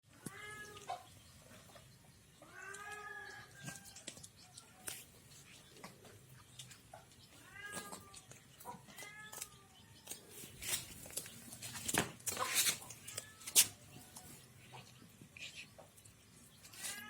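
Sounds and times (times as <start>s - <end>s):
cat meowing: 7.4s - 8.2s.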